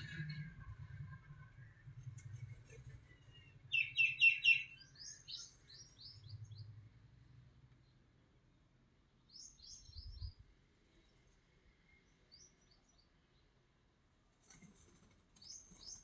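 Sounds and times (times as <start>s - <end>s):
small bird singing: 3.0s - 6.8s, 9.1s - 10.4s, 11.9s - 13.5s, 15.4s - 16.0s.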